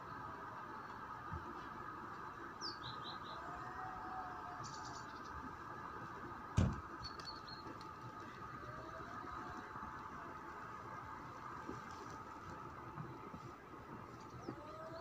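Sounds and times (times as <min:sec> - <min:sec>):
steady city hum: 0:00.0 - 0:15.0
small birds chirping: 0:02.4 - 0:03.6, 0:04.4 - 0:09.8, 0:12.2 - 0:15.0
sharp thump: 0:06.6 - 0:06.9.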